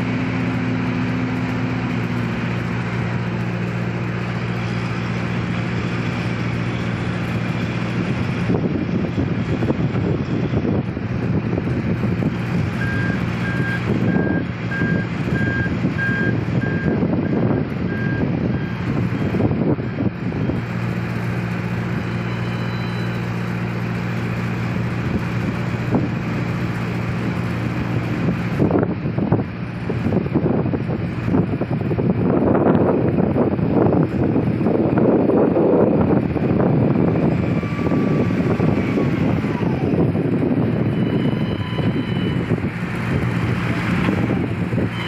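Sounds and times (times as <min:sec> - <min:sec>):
dump truck diesel engine: 0:00.0 - 0:45.0
reversing alarm beeping: 0:12.8 - 0:18.9, 0:22.0 - 0:23.3, 0:40.8 - 0:42.5.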